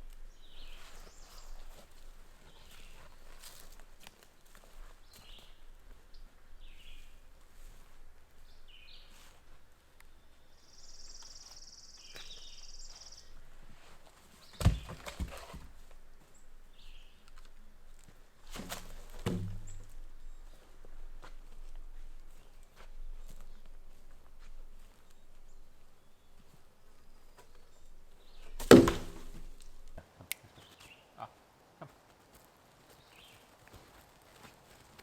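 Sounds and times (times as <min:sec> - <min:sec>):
heavy thuds: 0:18.5 - 0:19.9, 0:28.6 - 0:30.0.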